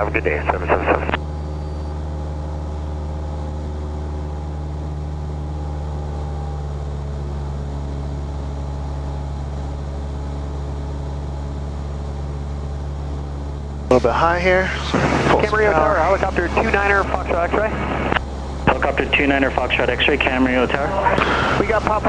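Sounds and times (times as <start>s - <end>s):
light aircraft engine droning: 0.0s - 22.0s.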